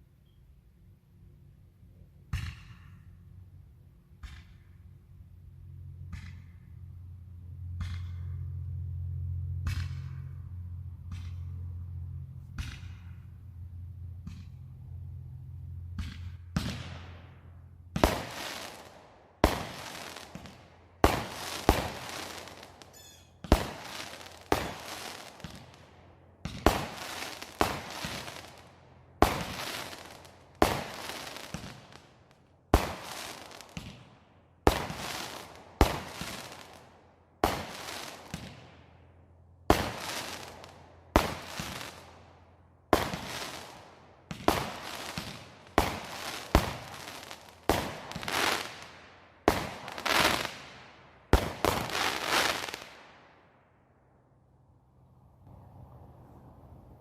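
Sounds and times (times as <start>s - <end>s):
faint firework pops: 2.3s - 3.2s, 9.6s - 10.3s, 12.4s - 13.3s, 15.9s - 38.9s, 42.9s - 50.7s
firework bangs with echo: 15.9s - 39.0s, 39.7s - 42.3s, 42.9s - 53.2s.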